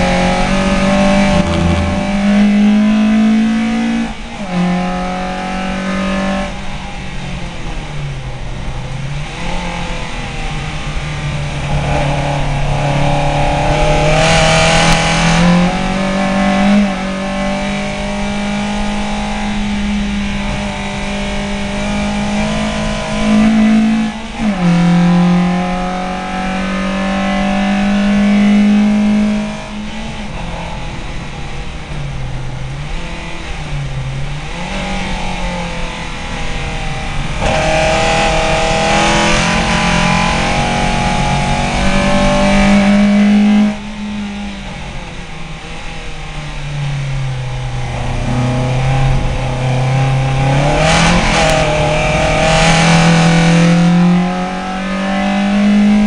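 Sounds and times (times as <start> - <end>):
race car engine accelerating: 0.0 - 56.0.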